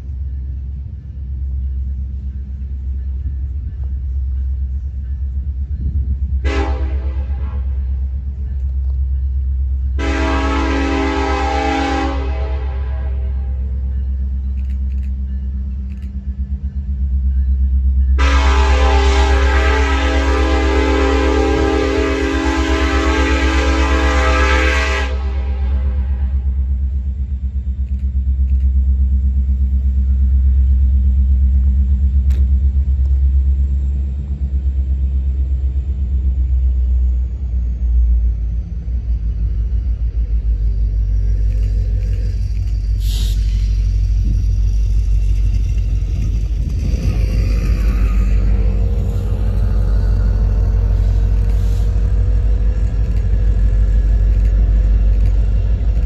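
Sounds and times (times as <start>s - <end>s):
train rumbling past: 0.0s - 56.0s
train horn: 6.3s - 8.6s, 9.6s - 14.2s, 18.0s - 26.8s, 45.2s - 53.7s.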